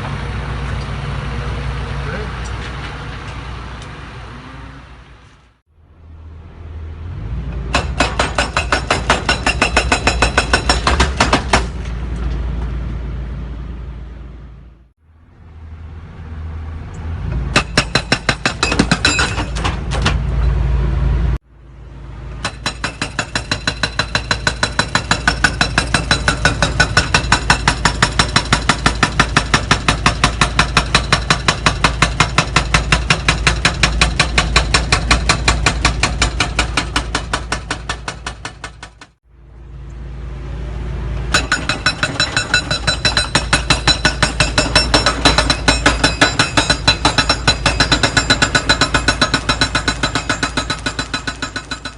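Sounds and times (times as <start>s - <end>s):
excavator engine running: 0.0s - 51.9s
hydraulic breaker hammering: 7.7s - 11.9s, 17.5s - 20.2s, 22.4s - 39.2s, 41.3s - 51.9s.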